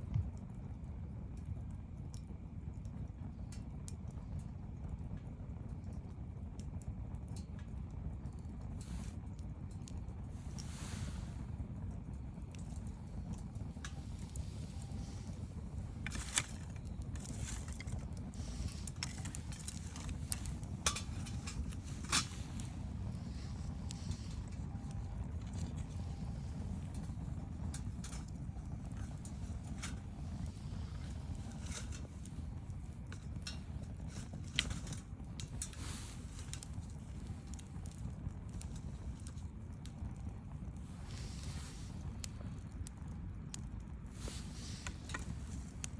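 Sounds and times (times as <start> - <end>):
campfire crackling: 0.0 - 45.9
low rumble: 10.2 - 43.0.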